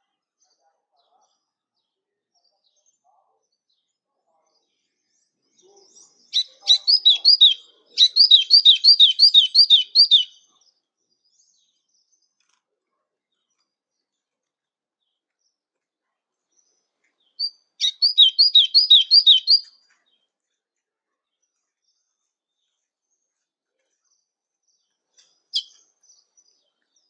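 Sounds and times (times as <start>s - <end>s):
songbird whistling: 6.4s - 10.3s, 17.4s - 19.7s.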